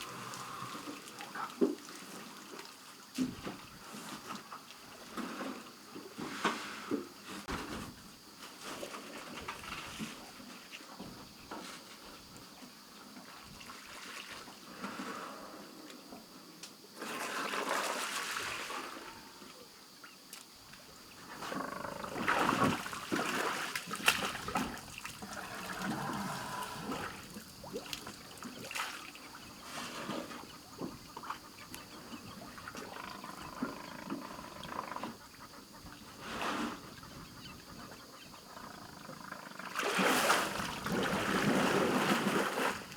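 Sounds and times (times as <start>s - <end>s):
water splashing and trickling: 0.0s - 3.5s, 17.0s - 18.9s, 22.0s - 35.0s, 39.7s - 42.9s.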